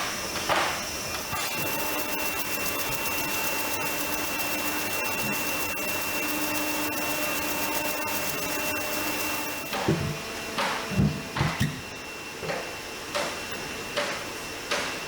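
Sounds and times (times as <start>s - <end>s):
machine whining and rushing: 1.2s - 11.4s.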